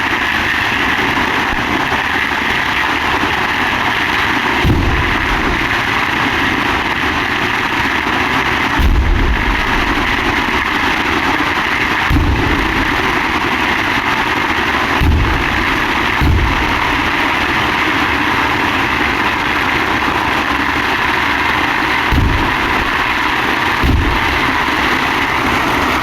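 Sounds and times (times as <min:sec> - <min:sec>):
firework shells bursting: 0:04.4 - 0:26.0.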